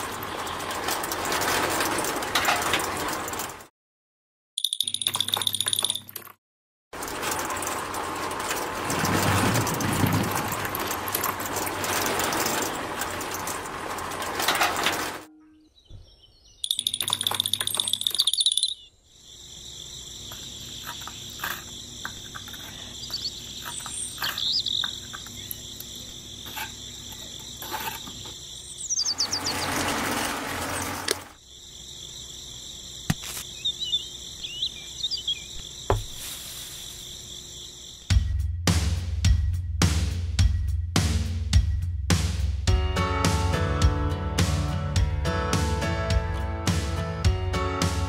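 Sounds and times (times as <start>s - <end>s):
bird chirps: 4.6s - 6.0s, 15.3s - 19.0s, 22.3s - 26.1s, 28.1s - 29.8s, 33.4s - 36.2s
crickets chirring: 16.0s - 38.6s
scraping noise: 29.1s - 31.4s.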